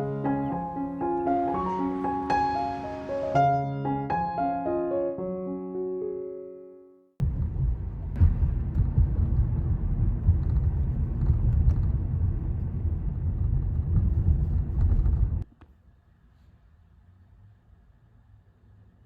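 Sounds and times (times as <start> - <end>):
loud low rumbling: 7.2 - 15.4.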